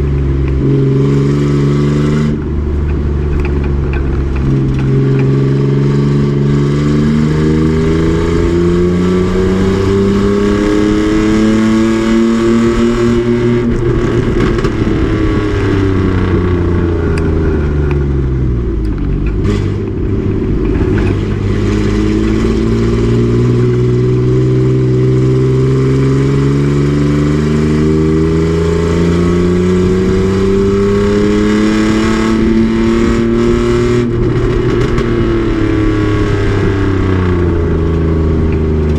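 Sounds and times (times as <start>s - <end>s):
race truck engine revving: 0.0s - 18.3s.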